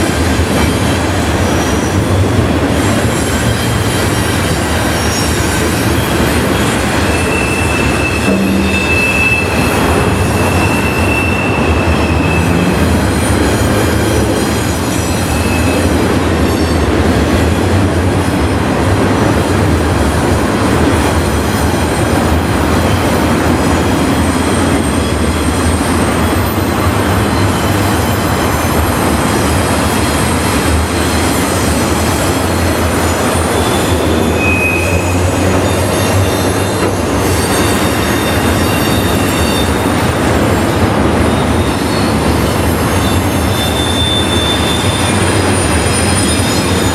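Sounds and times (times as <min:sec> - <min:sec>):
high wheel squeal: 0:00.0 - 0:18.7, 0:21.0 - 0:46.9
train wheels rumbling on rail: 0:00.0 - 0:46.9.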